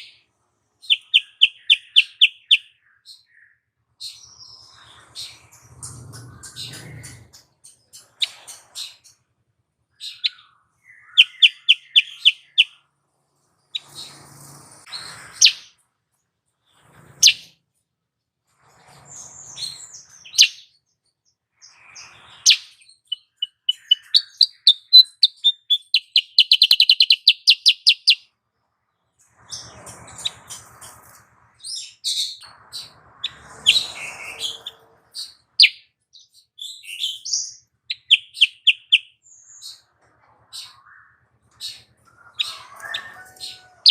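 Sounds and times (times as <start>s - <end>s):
bird chirping and whistling: 0.8s - 3.2s, 10.0s - 12.8s, 14.9s - 15.7s, 17.2s - 17.5s, 19.6s - 20.6s, 21.9s - 28.2s, 31.6s - 35.8s, 36.6s - 39.8s, 40.6s - 43.9s.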